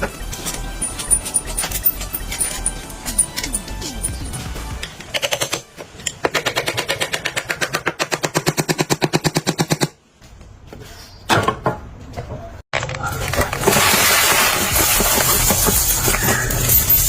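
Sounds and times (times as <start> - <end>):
rapid mechanical hammering: 4.9 - 10.0.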